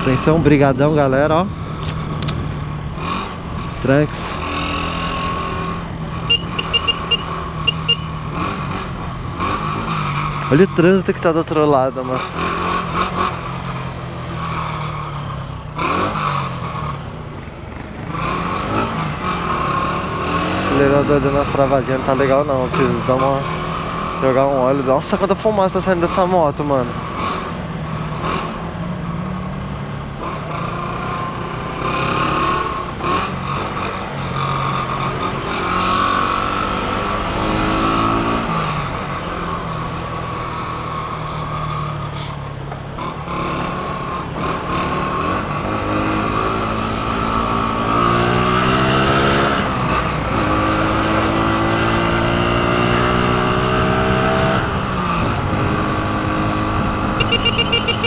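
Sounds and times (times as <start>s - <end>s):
motorcycle engine accelerating: 26.6s - 58.0s.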